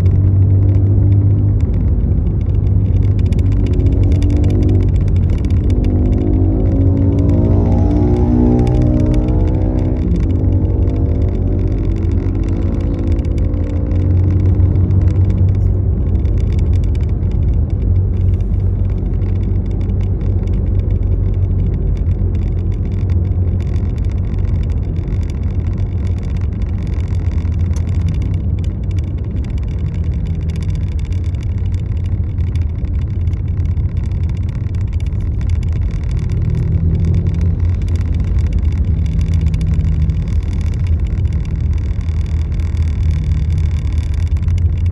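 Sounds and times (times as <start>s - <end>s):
car driving rumble: 0.0s - 44.9s.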